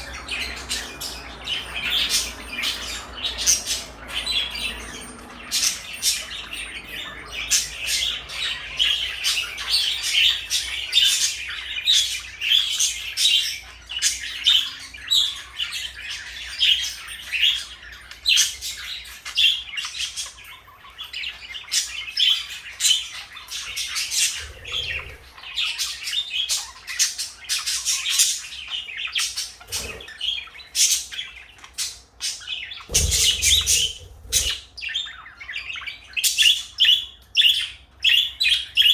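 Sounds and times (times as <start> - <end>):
parakeets chattering and chirping: 0.0 - 38.9
brief thump: 32.9 - 34.0.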